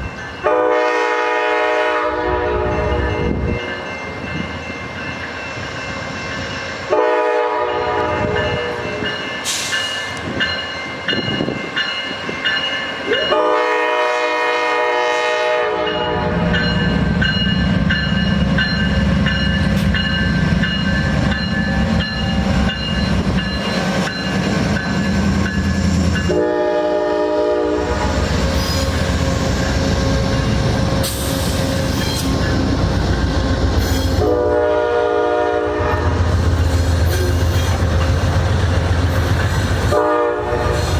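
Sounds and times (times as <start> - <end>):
train air horn blasts: 0.4 - 3.3, 6.9 - 9.8, 13.2 - 16.7, 26.2 - 30.3, 34.0 - 36.3, 39.9 - 40.9
train wheels rumbling and clattering: 2.5 - 15.2, 15.8 - 40.9.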